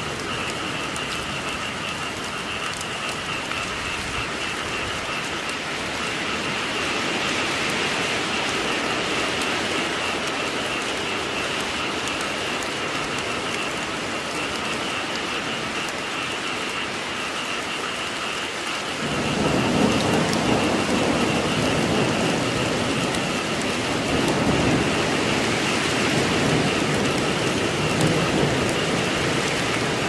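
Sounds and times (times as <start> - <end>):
heavy rain falling: 0.0 - 30.0
low rumble of thunder: 19.0 - 30.0.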